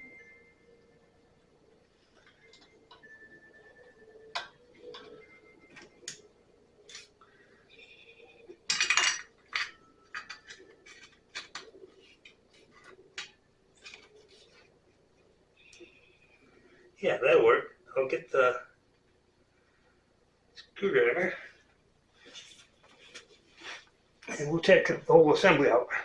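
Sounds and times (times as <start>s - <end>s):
metal tools clinking and tapping: 8.6s - 14.0s.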